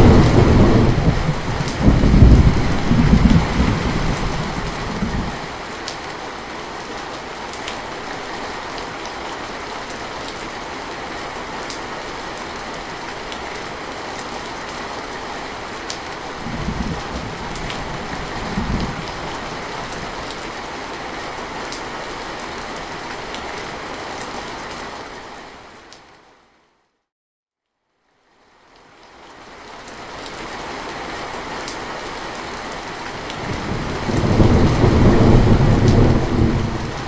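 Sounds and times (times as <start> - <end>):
low rumbles of thunder: 0.0 - 5.5, 16.4 - 20.2, 33.3 - 37.0
rain falling: 0.0 - 26.4, 28.2 - 37.0.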